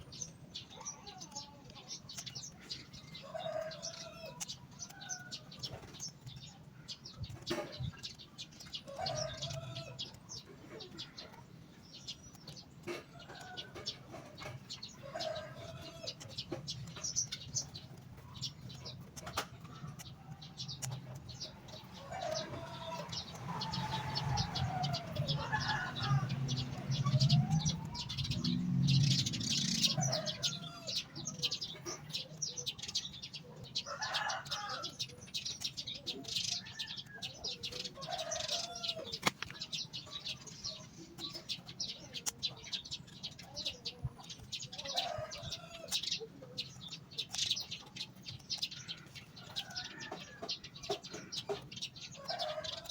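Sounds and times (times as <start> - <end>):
birds chirping: 0.0 - 52.9
clicks and rustles: 38.4 - 44.7.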